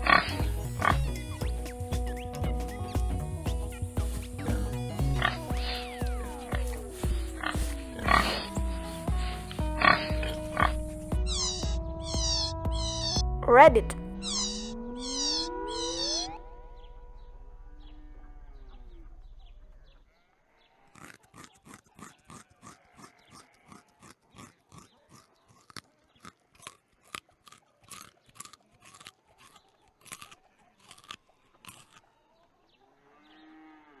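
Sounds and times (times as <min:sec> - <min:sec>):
rabbit chewing and crunching food: 0:20.9 - 0:32.2.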